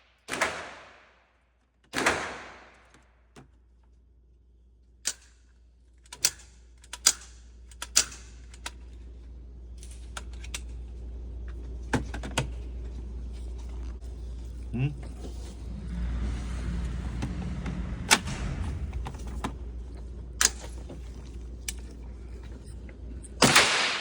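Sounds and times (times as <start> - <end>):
handgun shots echoing: 0.2 - 1.1, 2.0 - 2.8, 23.4 - 24.0
low hum: 12.5 - 24.0
sharp cracks: 23.4 - 24.0.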